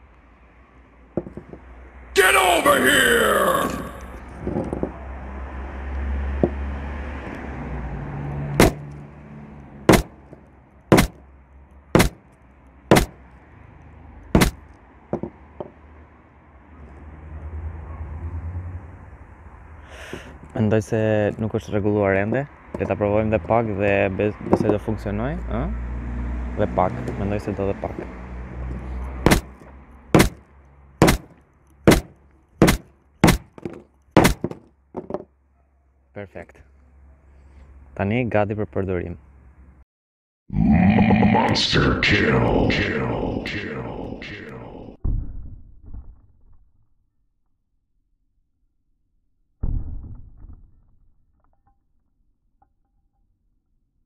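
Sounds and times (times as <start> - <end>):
hammer striking phone on wood: 8.6 - 8.8, 9.9 - 10.2, 10.9 - 11.2, 12.0 - 12.2, 12.9 - 13.2, 14.4 - 14.6, 15.2 - 15.7, 29.3 - 29.5, 30.2 - 30.4, 31.0 - 31.3, 31.9 - 35.2.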